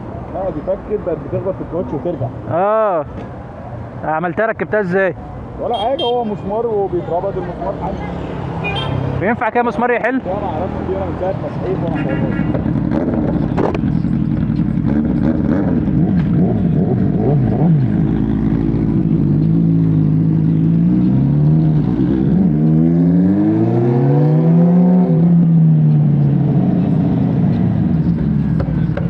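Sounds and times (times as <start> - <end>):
motorcycle engine running: 10.2 - 20.8.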